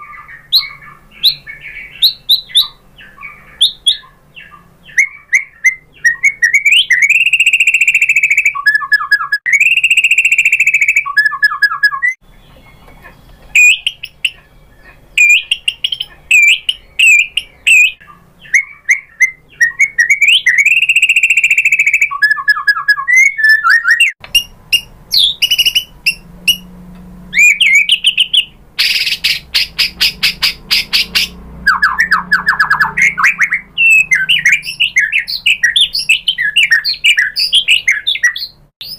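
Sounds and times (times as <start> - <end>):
songbird whistling and chattering: 0.0 - 26.7, 27.3 - 38.9
bird harsh rattle and trill: 27.3 - 36.1.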